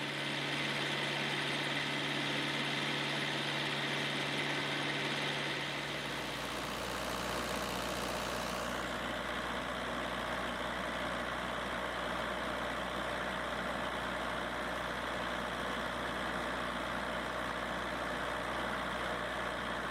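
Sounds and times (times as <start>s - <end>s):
diesel engine running: 0.0s - 14.8s.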